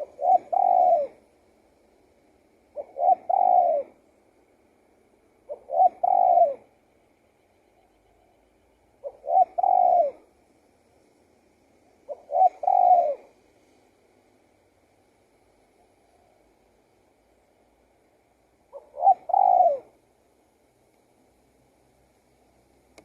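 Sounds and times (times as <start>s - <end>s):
dove cooing: 0.0s - 1.3s, 2.7s - 4.1s, 5.4s - 6.8s, 7.8s - 10.3s, 12.0s - 13.4s, 18.7s - 20.0s.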